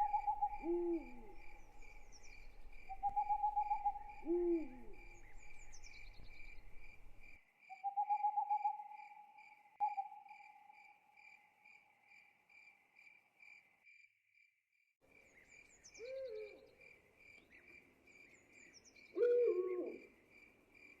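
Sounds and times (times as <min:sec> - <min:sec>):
owl hooting: 0:00.0 - 0:06.9, 0:07.8 - 0:09.2, 0:16.0 - 0:16.7, 0:19.2 - 0:20.0
crickets chirping: 0:00.0 - 0:14.0.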